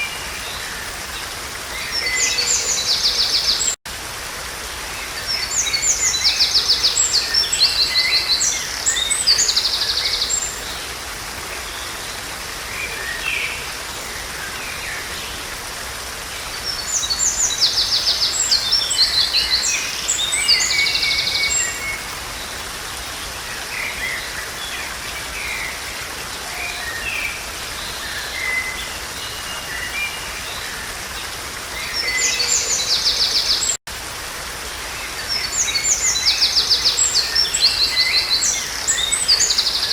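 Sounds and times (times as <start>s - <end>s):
running water hiss: 0.0s - 39.9s.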